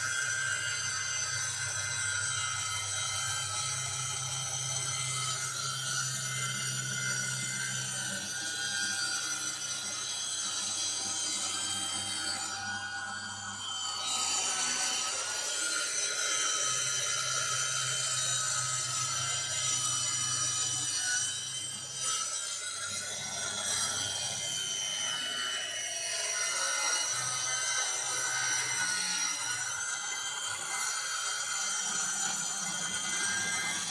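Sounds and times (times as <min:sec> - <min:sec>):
circular saw cutting wood: 0:14.1 - 0:33.9.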